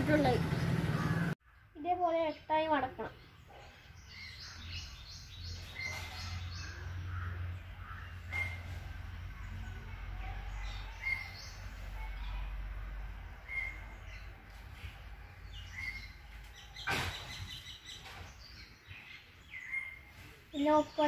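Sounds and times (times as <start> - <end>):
bird chirping: 0.1 - 21.0.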